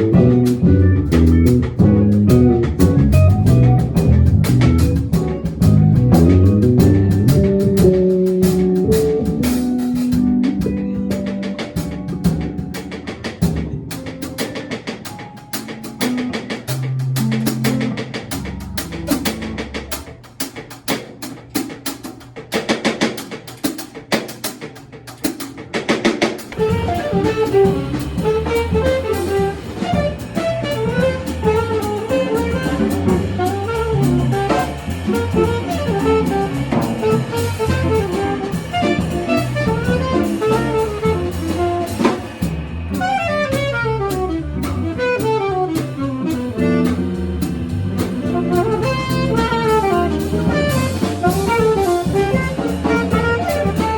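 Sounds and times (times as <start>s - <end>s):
saxophone melody: 0.0s - 12.8s, 26.5s - 53.9s
low accompaniment: 0.0s - 21.8s, 25.6s - 53.9s
drums playing: 0.0s - 53.9s.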